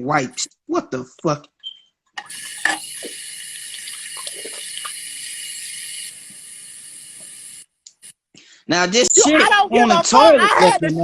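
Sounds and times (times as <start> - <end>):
tap water running into sink: 2.2 - 7.6.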